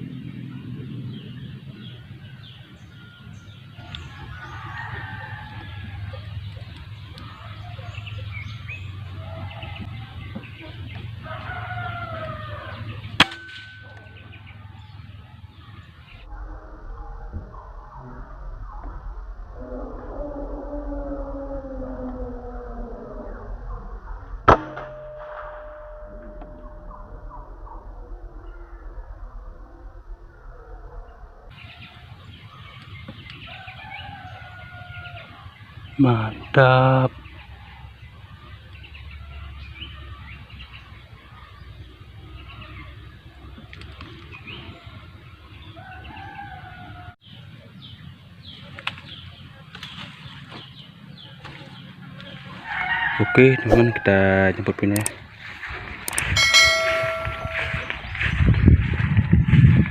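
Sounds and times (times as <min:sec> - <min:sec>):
small birds chirping: 0:00.0 - 0:16.3, 0:31.0 - 0:52.9
low hum: 0:00.0 - 0:34.4, 0:55.1 - 0:59.9
doves cooing: 0:00.0 - 0:47.2
rooster crowing: 0:01.9 - 0:06.5, 0:07.2 - 0:10.3, 0:11.1 - 0:15.0, 0:33.4 - 0:35.6, 0:45.6 - 0:47.2, 0:52.6 - 0:54.2
ringing tone: 0:13.2 - 0:14.4, 0:24.5 - 0:28.9, 0:56.4 - 0:58.4
air rifle shot: 0:24.5 - 0:25.7.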